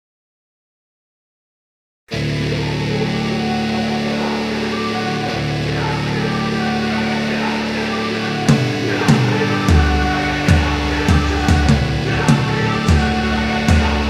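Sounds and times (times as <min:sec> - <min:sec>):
electric guitar chords: 0:02.1 - 0:14.0
heavy bass: 0:08.5 - 0:14.0.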